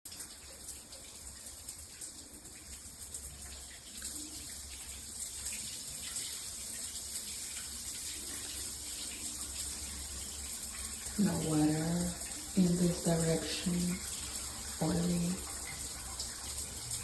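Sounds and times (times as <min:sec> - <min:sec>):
shower spray hissing: 0:10.9 - 0:17.0.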